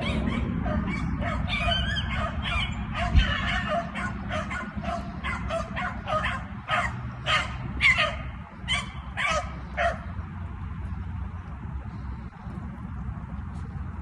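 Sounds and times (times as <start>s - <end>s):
beagles baying: 0.0s - 10.2s.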